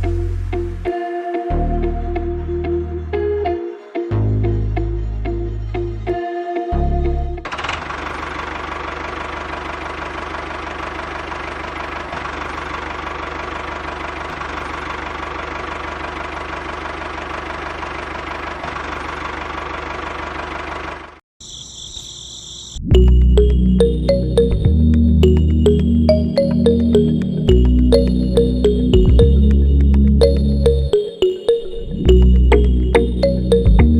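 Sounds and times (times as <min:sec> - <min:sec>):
music: 0:00.0 - 0:07.5, 0:22.9 - 0:33.9
brief high tone: 0:23.4 - 0:33.9.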